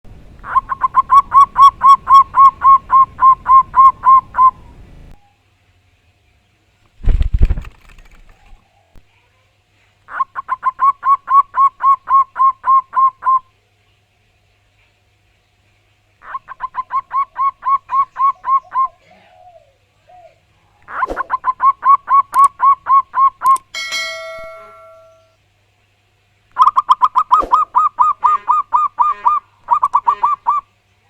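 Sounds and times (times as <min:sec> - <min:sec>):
dove cooing: 0:00.0 - 0:05.2, 0:07.0 - 0:08.6, 0:16.2 - 0:23.6, 0:26.6 - 0:30.6.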